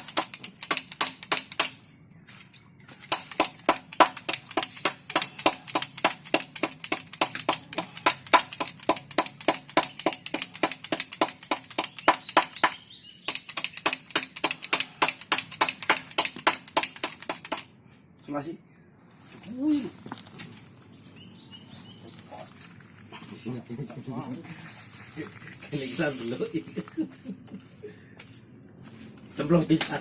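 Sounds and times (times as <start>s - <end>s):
rapid sharp taps: 0.0s - 1.8s, 3.1s - 17.7s.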